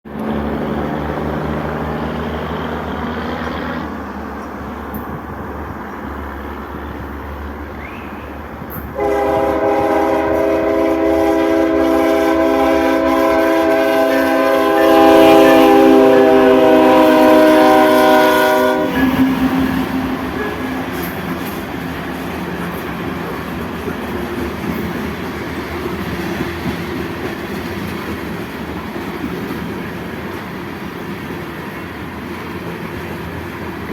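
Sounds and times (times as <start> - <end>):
train running rumble: 0.1 - 33.9
locomotive air horn chord: 8.9 - 21.6.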